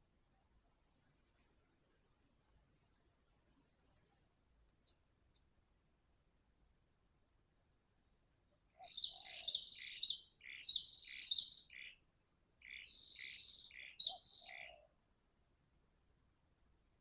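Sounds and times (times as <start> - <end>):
bright high bird chirping: 8.8 - 12.0.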